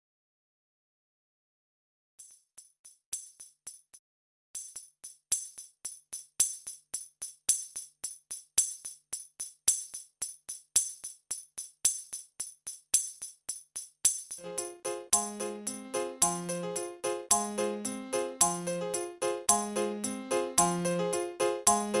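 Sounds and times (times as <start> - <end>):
tambourine jingle percussion: 2.2 - 4.0, 4.6 - 22.0.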